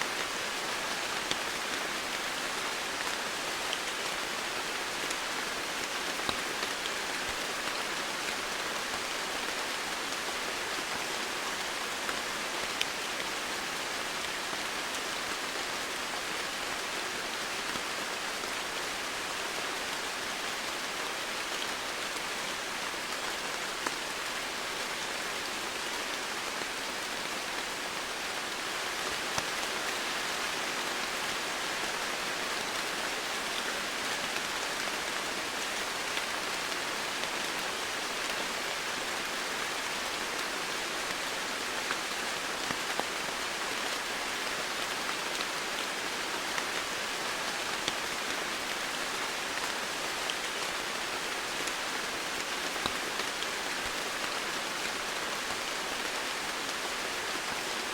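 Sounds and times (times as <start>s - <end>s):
rain hiss: 0.0s - 57.9s
raindrops ticking on surfaces: 0.1s - 57.9s.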